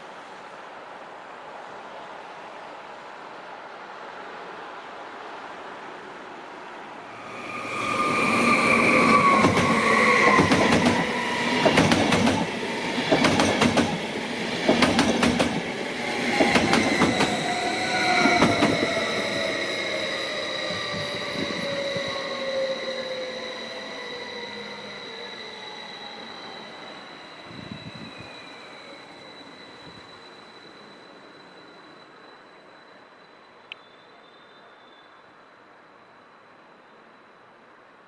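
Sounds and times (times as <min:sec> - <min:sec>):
train whining tones: 0:07.0 - 0:37.6
wheels clacking over rail joints: 0:09.2 - 0:15.7.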